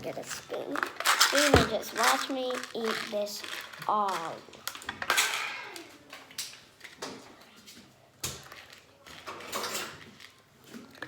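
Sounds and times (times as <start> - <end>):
cutlery and dishes clinking: 5.0 - 5.6, 9.2 - 10.3.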